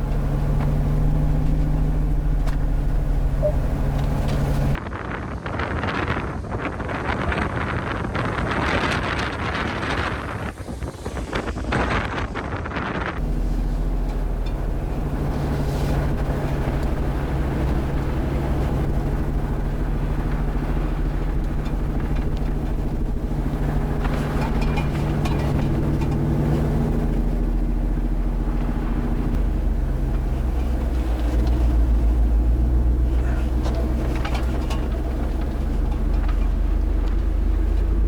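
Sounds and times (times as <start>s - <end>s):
car engine droning: 0.0s - 4.8s, 13.2s - 38.0s
road and wind noise: 0.0s - 38.0s.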